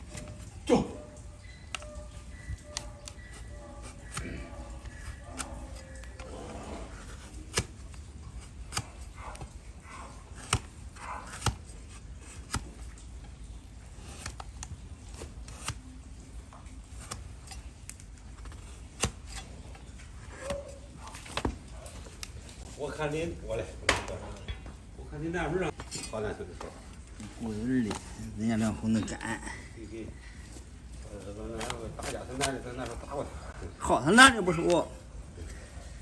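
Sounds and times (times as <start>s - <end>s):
hoof trimming snips and clicks: 1.4s - 22.7s, 31.4s - 33.1s.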